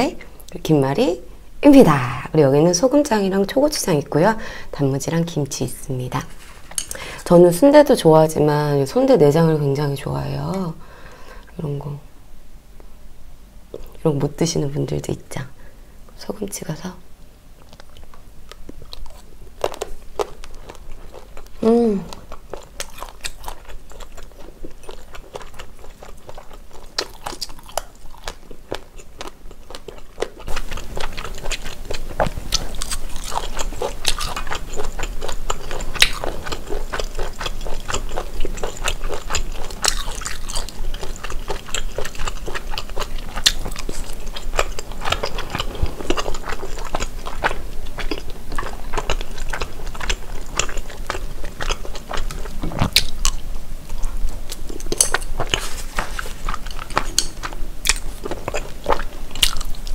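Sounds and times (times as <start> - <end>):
close chewing and biting: 17.6 - 59.9.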